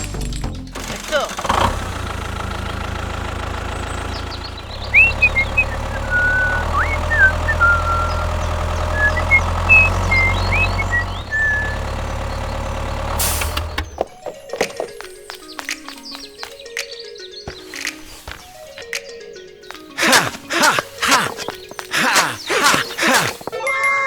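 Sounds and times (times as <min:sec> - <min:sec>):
small tractor motor droning: 0:00.7 - 0:14.0, 0:19.8 - 0:23.6
high chirps and squeaks: 0:04.8 - 0:11.8.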